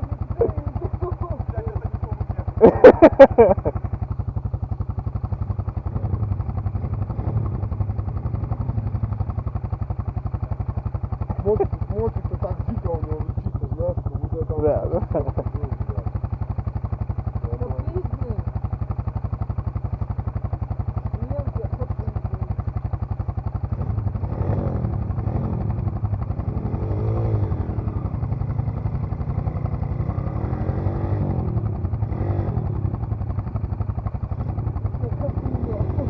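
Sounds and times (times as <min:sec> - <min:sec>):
dirt bike engine revving: 0:00.0 - 0:03.8, 0:05.8 - 0:09.2, 0:23.7 - 0:33.0, 0:34.4 - 0:36.0.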